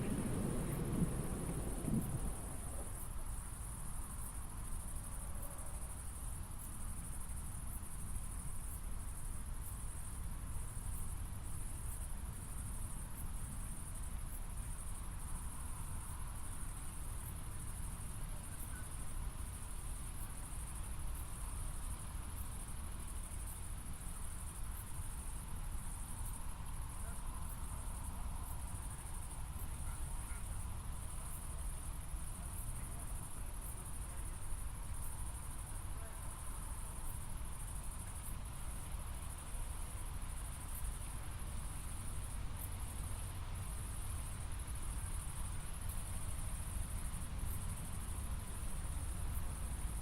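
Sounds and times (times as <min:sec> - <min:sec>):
low steady rumble: 0:00.0 - 0:03.8
crickets trilling: 0:00.0 - 0:50.0.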